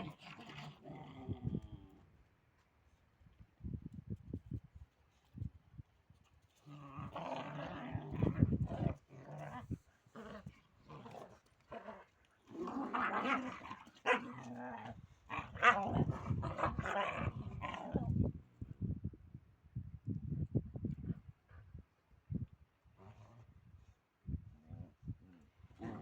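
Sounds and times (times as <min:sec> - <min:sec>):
dogs growling: 0:00.0 - 0:02.0, 0:06.6 - 0:18.1, 0:24.6 - 0:26.0.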